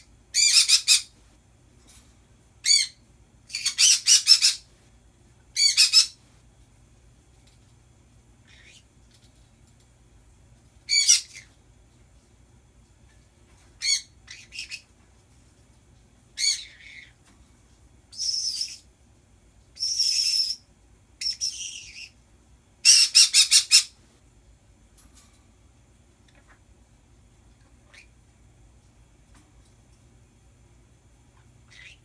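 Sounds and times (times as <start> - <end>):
pet birds squawking and screeching: 0.4 - 1.2, 2.6 - 4.7, 5.6 - 6.2, 8.4 - 8.9, 10.9 - 11.6, 13.8 - 14.9, 16.4 - 17.2, 18.1 - 18.9, 19.8 - 20.6, 21.2 - 22.2, 22.8 - 24.0, 27.6 - 28.2, 31.7 - 32.0.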